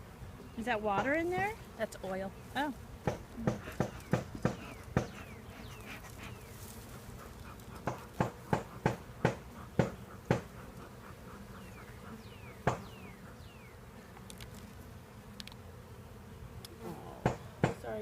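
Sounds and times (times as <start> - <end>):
bees buzzing: 0.0 - 18.0
sharp taps and knocks: 3.0 - 5.2, 7.8 - 10.5, 12.6 - 12.9, 17.2 - 17.8.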